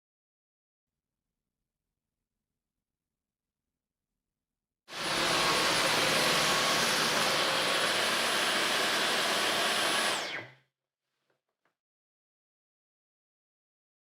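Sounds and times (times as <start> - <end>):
vacuum cleaner running: 4.9 - 10.6
vacuum motor spinning down: 4.9 - 10.6.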